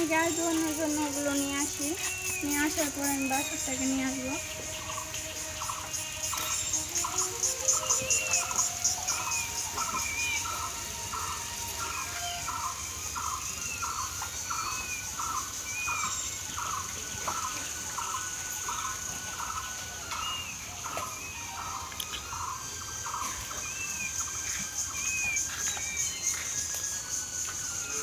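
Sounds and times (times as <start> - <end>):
bird chirping: 0.0 - 19.5.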